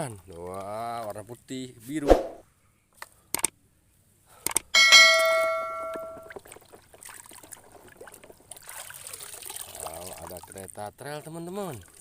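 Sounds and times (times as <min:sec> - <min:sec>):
short clicks: 0:03.0 - 0:03.6, 0:04.4 - 0:04.7
bell-like ding: 0:04.8 - 0:06.3.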